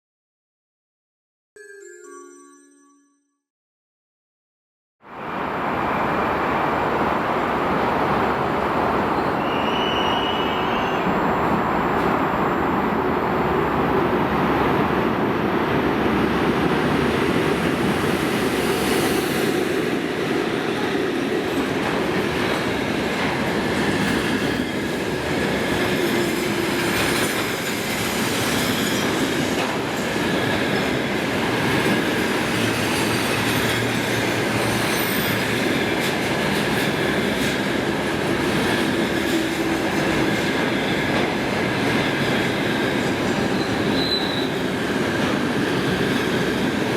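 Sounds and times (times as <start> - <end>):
train wheels rumbling on rails: 7.0 - 46.9
faint wheel squeal: 9.2 - 11.2, 43.6 - 44.6.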